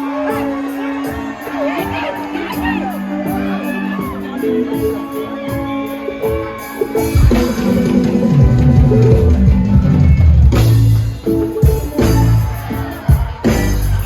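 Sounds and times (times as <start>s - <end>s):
live band music: 0.0s - 14.0s
driving drum hits: 7.1s - 14.0s.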